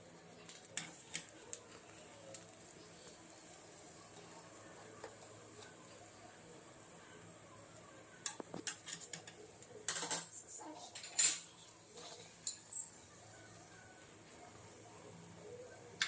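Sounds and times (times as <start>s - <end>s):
dishes and utensils clinking: 8.2s - 12.8s.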